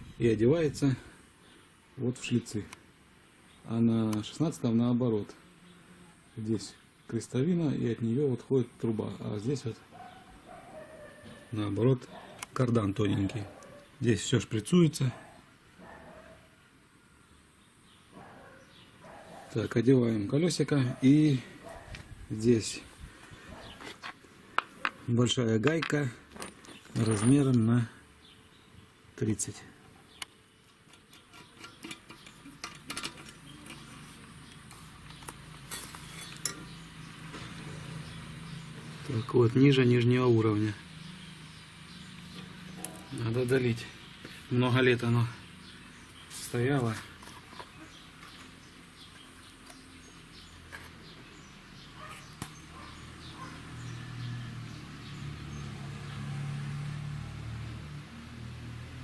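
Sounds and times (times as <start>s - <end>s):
small birds chirping: 0.0s - 59.0s
hand tools clinking on metal parts: 25.7s - 27.6s, 30.8s - 33.9s, 35.1s - 36.8s.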